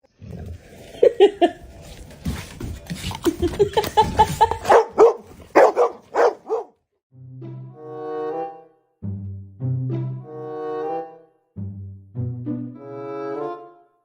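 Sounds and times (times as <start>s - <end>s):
dog yipping: 4.6s - 6.7s.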